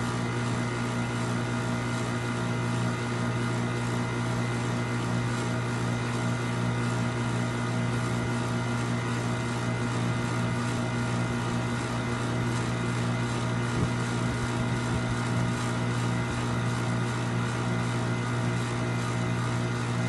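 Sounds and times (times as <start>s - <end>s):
mechanical drone with low hum: 9.8s - 20.0s.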